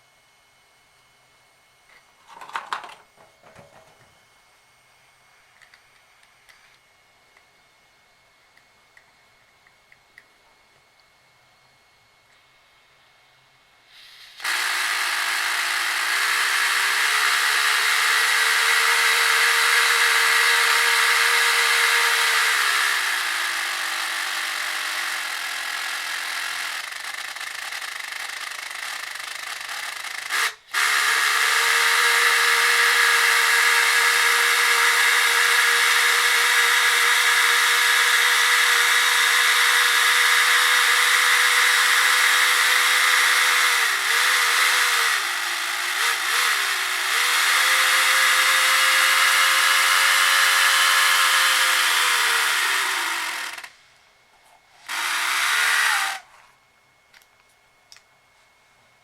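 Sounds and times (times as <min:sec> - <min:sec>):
model engine whirring: 0:14.0 - 0:53.8, 0:54.8 - 0:56.3.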